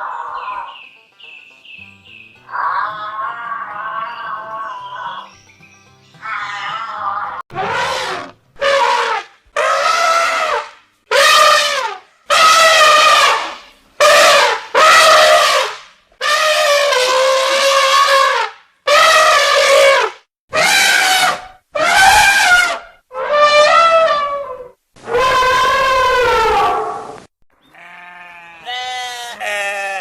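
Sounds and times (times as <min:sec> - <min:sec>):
goats bleating: 0:27.7 - 0:30.0.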